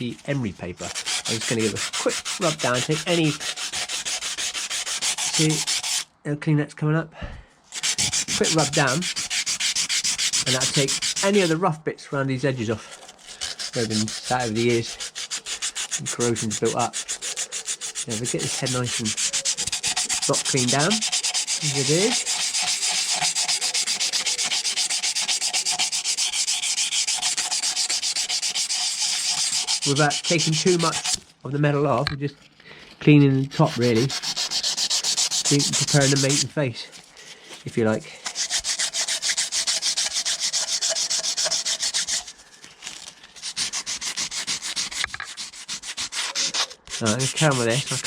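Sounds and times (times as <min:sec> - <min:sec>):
sandpaper scraping metal: 0:00.0 - 0:06.1, 0:07.7 - 0:11.7, 0:12.4 - 0:31.2, 0:33.0 - 0:48.0.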